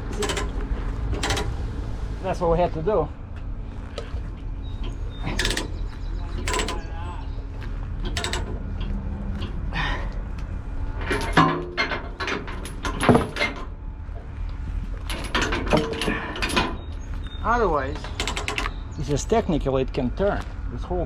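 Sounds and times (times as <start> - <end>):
sharp ringing metal clanks: 0.0 - 0.6, 1.2 - 1.6, 5.3 - 7.0, 8.2 - 8.6, 18.1 - 18.9
metal tie-down gear clanking: 0.0 - 1.7, 4.7 - 7.4, 8.0 - 9.6, 11.0 - 13.8, 15.0 - 16.9, 17.5 - 19.4
steady low rumble: 0.0 - 21.0.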